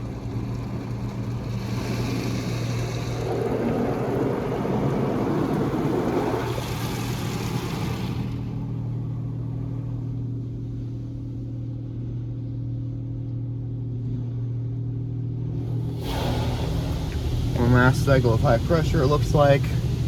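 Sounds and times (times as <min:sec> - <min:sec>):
water spray hitting car: 0:00.0 - 0:08.6, 0:15.6 - 0:20.0
steady low hum: 0:00.0 - 0:20.0.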